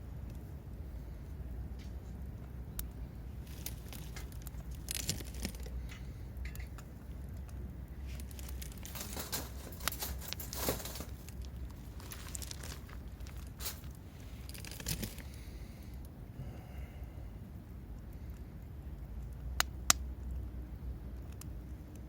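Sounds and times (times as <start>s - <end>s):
steady low rumble: 0.0s - 22.0s
rustling and crinkling of handling: 3.3s - 15.7s.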